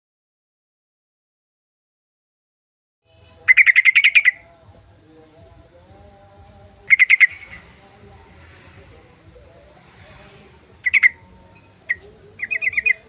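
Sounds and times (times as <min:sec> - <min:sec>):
bulbul chattering call: 0:03.2 - 0:05.0, 0:06.1 - 0:08.1, 0:09.1 - 0:13.0.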